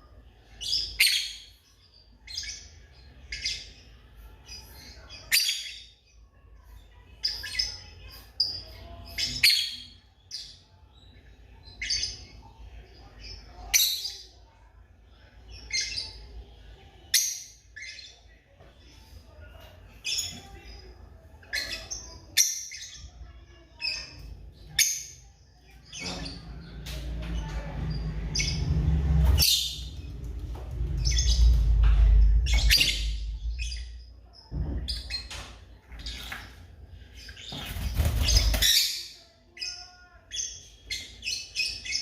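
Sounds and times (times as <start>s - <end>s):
loud low rumble: 26.2s - 34.2s.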